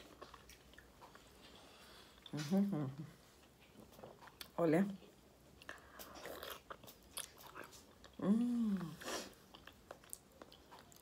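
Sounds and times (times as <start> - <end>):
person chewing: 0.0 - 4.6, 5.4 - 11.0
person humming: 2.3 - 3.2, 8.2 - 9.1.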